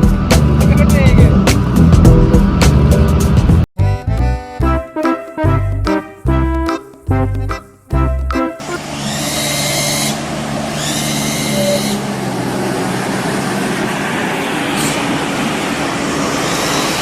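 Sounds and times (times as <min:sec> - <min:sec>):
vehicle engine running: 0:05.6 - 0:16.1.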